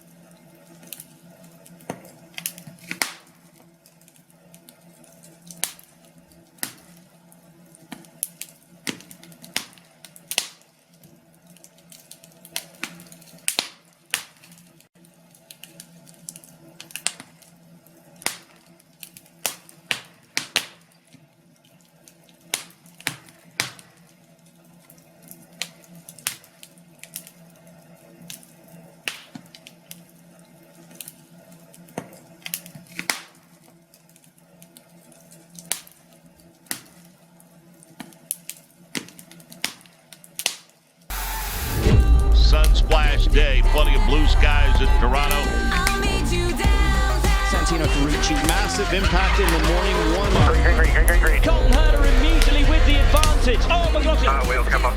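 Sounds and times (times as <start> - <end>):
fireplace fire crackling: 0.0 - 54.9
faint steady hum: 41.1 - 54.9.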